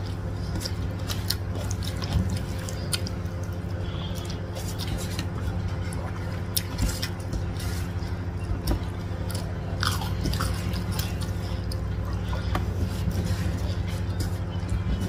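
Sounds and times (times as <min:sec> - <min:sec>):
chewing and wet mouth smacks: 0:00.0 - 0:07.5
low hum: 0:00.0 - 0:15.0.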